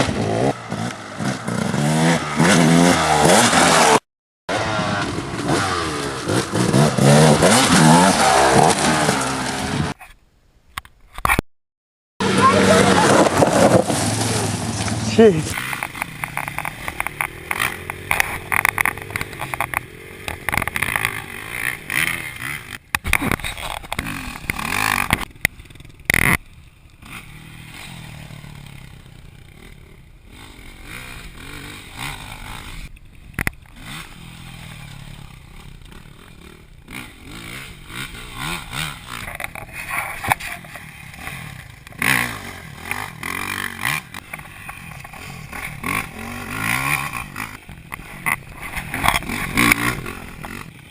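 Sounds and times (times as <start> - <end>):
dirt bike engine revving: 0.0 - 10.0, 12.2 - 50.9
sharp knocks and rattles: 15.6 - 26.4.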